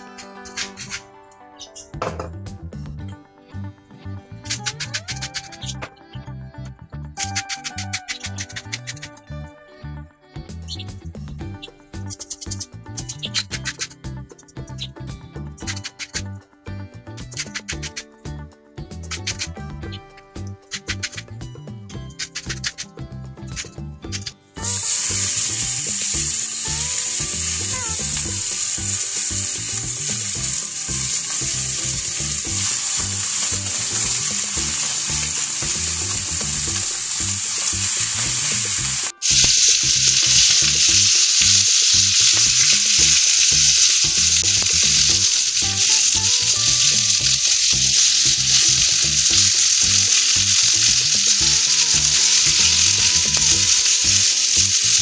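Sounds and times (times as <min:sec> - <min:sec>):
chicken sizzling on a griddle: 0:24.6 - 0:55.0.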